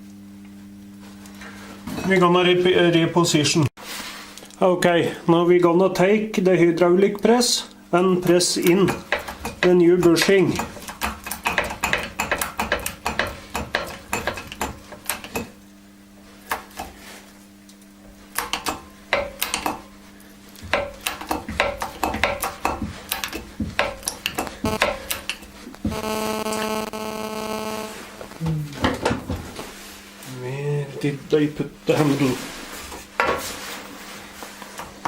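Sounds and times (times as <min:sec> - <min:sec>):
buzzing hum: 0:14.1 - 0:30.0.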